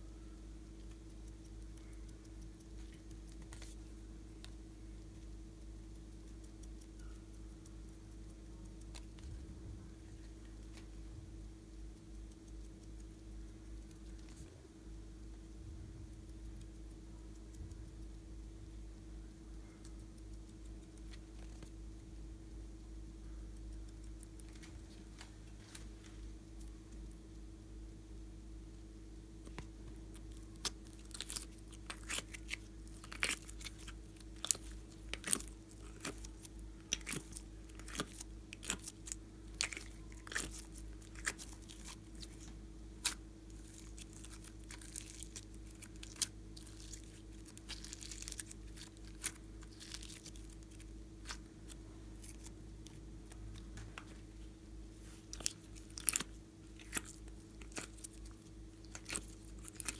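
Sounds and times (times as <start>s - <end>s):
low electrical hum: 0.0s - 59.9s
slime clicking and crackling: 2.6s - 3.8s, 29.5s - 53.8s, 55.2s - 59.9s.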